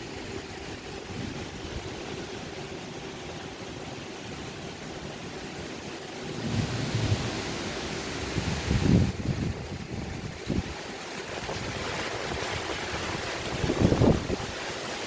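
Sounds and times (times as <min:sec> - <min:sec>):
wind buffeting microphone: 0:00.0 - 0:03.6, 0:06.3 - 0:15.0
faint steady hum: 0:00.0 - 0:15.0
strong wind rushing: 0:06.3 - 0:10.8, 0:11.4 - 0:14.6.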